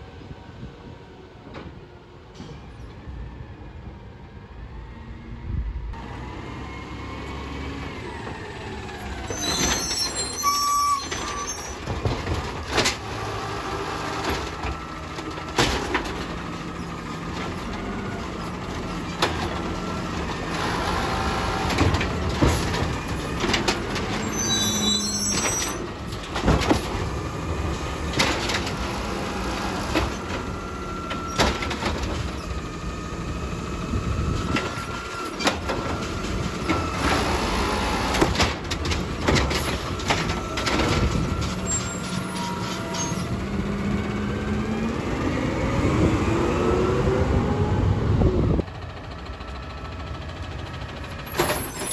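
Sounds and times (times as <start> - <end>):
garbage truck engine running: 5.9 - 51.9
high metallic squeals: 8.8 - 12.0, 22.9 - 26.0, 41.1 - 43.5.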